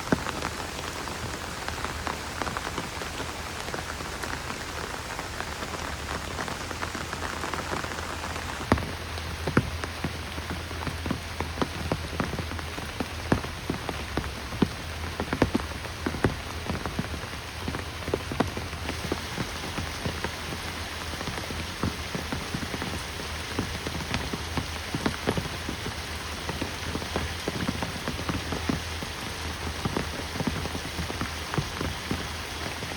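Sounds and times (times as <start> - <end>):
sharp raindrop hits: 0.0 - 32.9
steady rain falling: 0.0 - 32.9.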